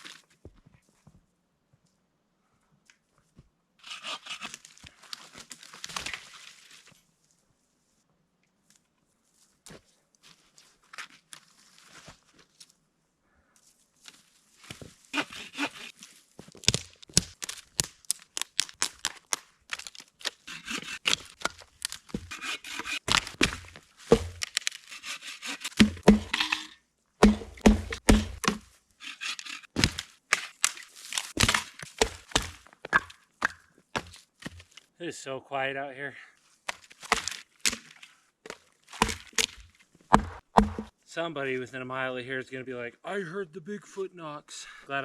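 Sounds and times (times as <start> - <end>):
sticks snapping: 16.6 - 26.3
heavy wood knocks: 25.8 - 26.4, 27.2 - 28.6, 40.1 - 40.9.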